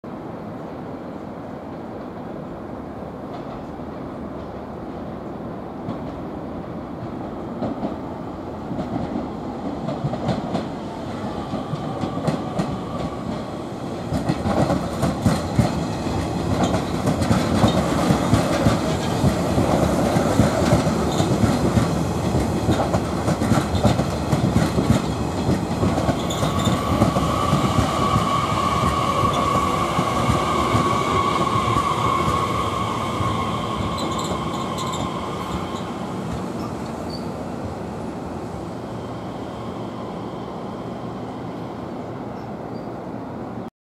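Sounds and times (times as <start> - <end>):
train wheels clattering over rail joints: 14.1 - 27.9
train brake squeal: 26.2 - 36.0, 36.6 - 37.4, 42.3 - 43.0.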